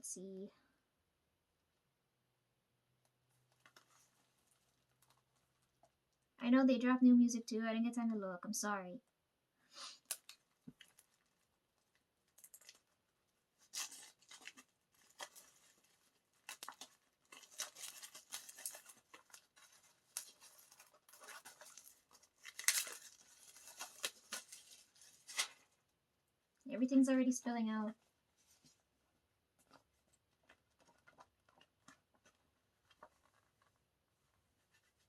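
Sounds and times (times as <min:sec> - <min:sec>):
packaging tearing and crinkling: 0:10.0 - 0:11.5, 0:12.3 - 0:13.0, 0:13.6 - 0:25.8.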